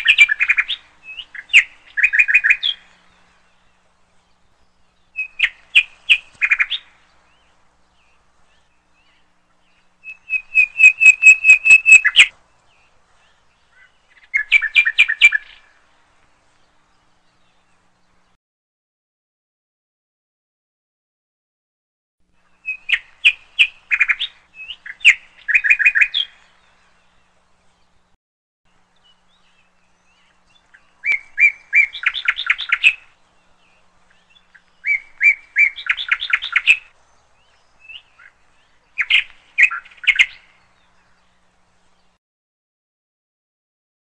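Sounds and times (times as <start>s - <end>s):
bird chirping rapidly: 0.0s - 3.1s, 5.0s - 9.0s, 9.9s - 12.3s, 13.7s - 15.6s, 29.0s - 33.2s, 34.1s - 40.8s.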